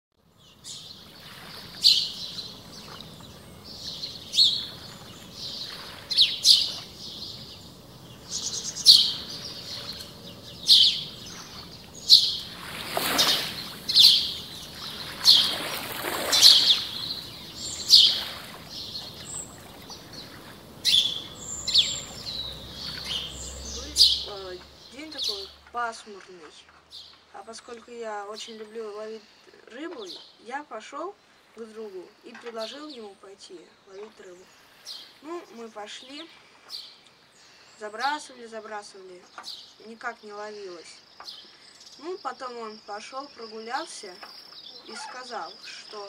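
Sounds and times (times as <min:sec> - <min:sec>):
birds calling: 0:00.2 - 0:46.0
harsh bird calls: 0:00.4 - 0:30.5, 0:33.9 - 0:46.0.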